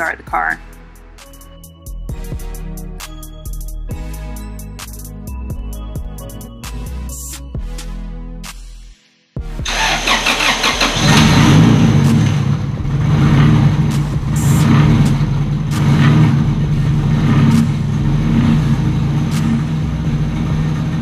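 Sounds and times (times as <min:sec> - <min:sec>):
car engine cranking: 0:09.6 - 0:21.0
car engine idling: 0:09.6 - 0:21.0.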